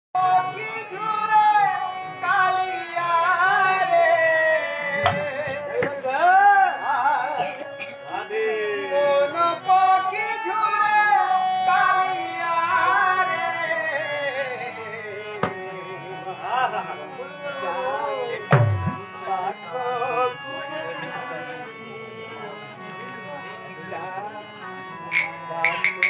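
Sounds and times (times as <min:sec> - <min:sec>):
sustained instrumental accompaniment: 0:00.2 - 0:26.0
sharp percussive strikes: 0:18.5 - 0:19.1, 0:25.1 - 0:26.0.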